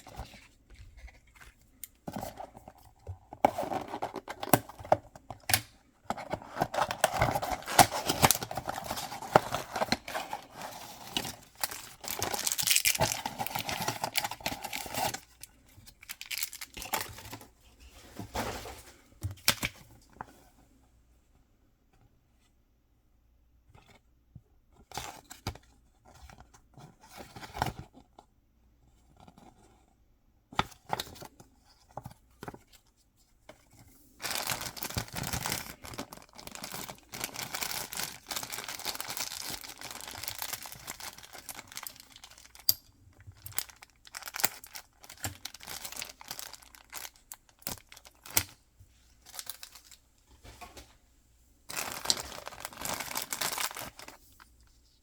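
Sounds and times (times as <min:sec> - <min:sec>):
packaging tearing and crinkling: 0:06.5 - 0:17.3, 0:34.2 - 0:42.7, 0:43.4 - 0:48.6, 0:51.7 - 0:54.2.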